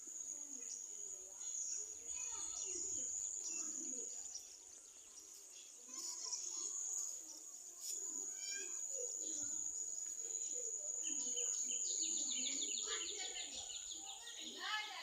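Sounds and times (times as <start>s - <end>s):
birds chirping: 0.2s - 15.0s
insects droning: 7.9s - 15.0s.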